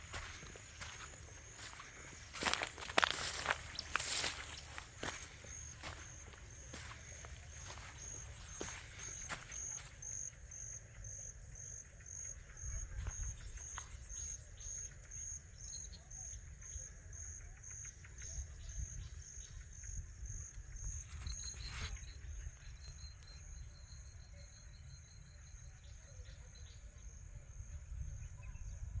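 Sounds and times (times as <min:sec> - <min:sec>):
high-pitched insect drone: 0:00.0 - 0:10.3
insects chirping: 0:00.0 - 0:29.0.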